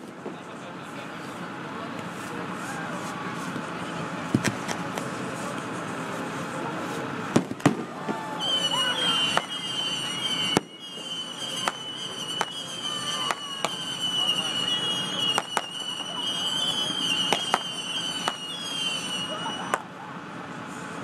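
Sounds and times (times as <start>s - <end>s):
fireworks bursting bangs: 2.1s - 20.0s
high steady whistle: 8.1s - 19.9s.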